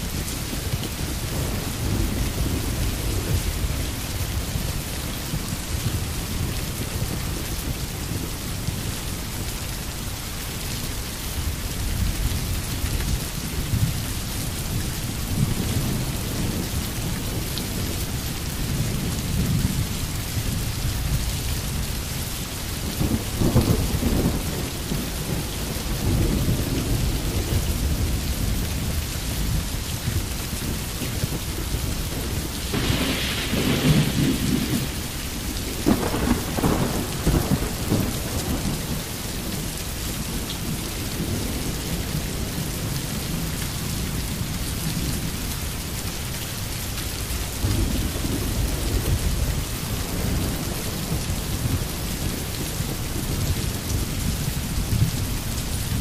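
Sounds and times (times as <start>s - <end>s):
steady rain: 0.0s - 56.0s
thunder rumbles: 14.7s - 45.3s, 47.4s - 56.0s.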